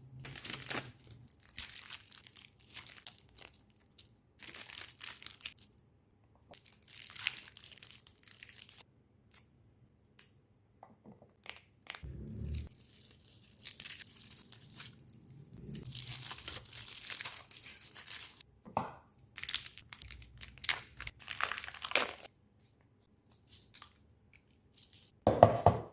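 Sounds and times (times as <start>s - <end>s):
plastic wrappers tearing and crinkling: 0.2s - 5.8s, 6.6s - 9.4s, 12.6s - 18.4s, 19.3s - 22.3s, 23.3s - 25.2s.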